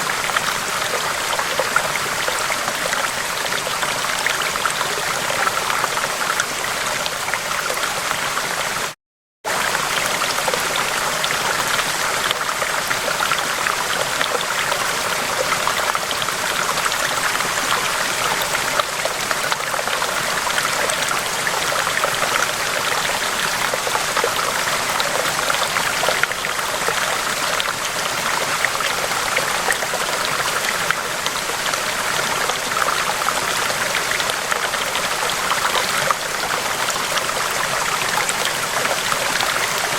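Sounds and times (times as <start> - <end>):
river water rushing: 9.5 - 39.9.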